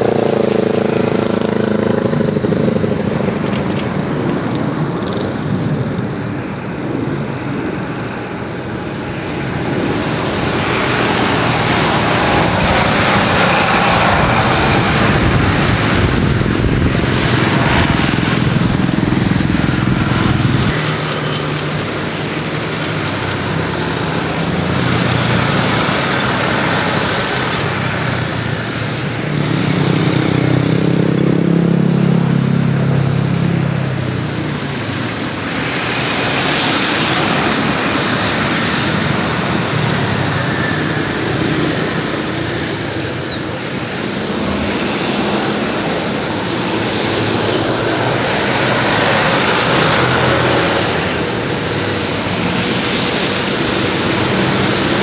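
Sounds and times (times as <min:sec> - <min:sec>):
road traffic noise: 0:00.0 - 0:55.0
vehicle engines passing: 0:00.0 - 0:55.0.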